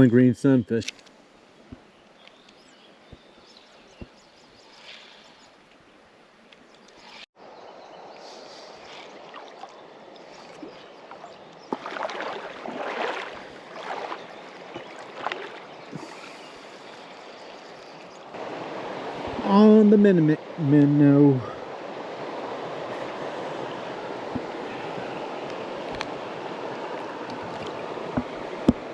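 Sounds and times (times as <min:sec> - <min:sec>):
creek water running: 0:02.8 - 0:28.9
water splashing and sloshing: 0:08.5 - 0:20.6, 0:21.6 - 0:28.9.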